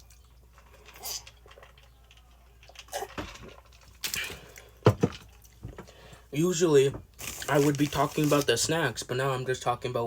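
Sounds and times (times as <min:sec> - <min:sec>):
mouth and handling sounds: 0:00.0 - 0:06.2, 0:07.1 - 0:08.9
close-miked eating and drinking: 0:00.0 - 0:10.0.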